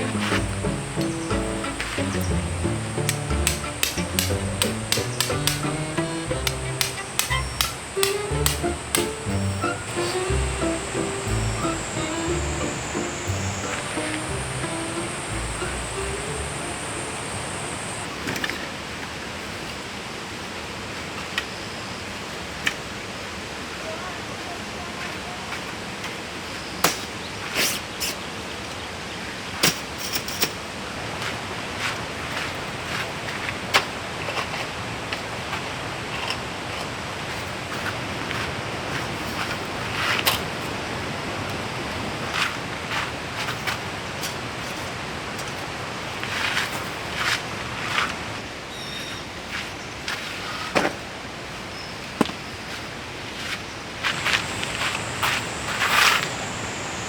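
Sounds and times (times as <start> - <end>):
stream rushing: 0.0 - 18.2, 54.1 - 57.0
sharp clicks and knocks: 2.8 - 10.2.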